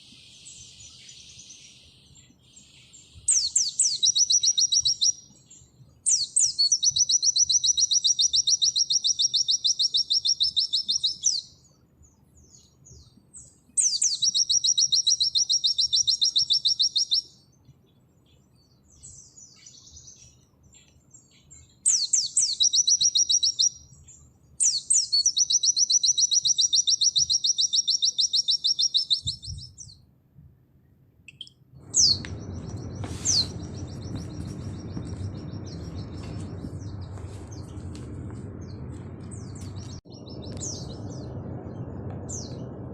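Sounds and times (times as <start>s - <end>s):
bird singing high trills: 0.0s - 11.7s, 12.4s - 17.6s, 18.6s - 30.0s, 31.3s - 42.7s
steady low background noise: 29.9s - 42.9s.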